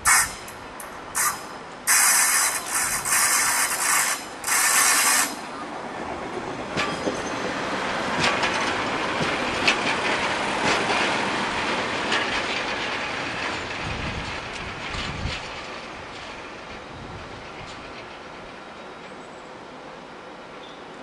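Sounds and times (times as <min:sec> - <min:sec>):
wheels clacking over rail joints: 0:00.0 - 0:19.2
diesel train running past: 0:00.0 - 0:21.0.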